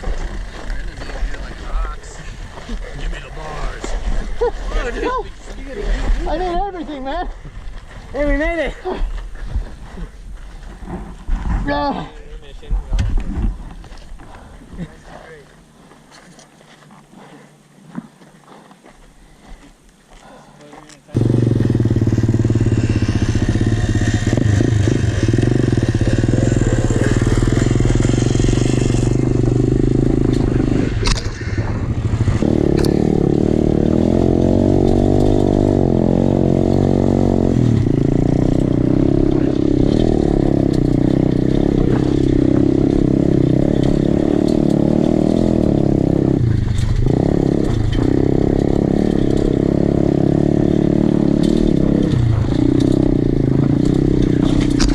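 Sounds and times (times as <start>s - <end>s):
pit bike engine revving: 21.2s - 54.9s.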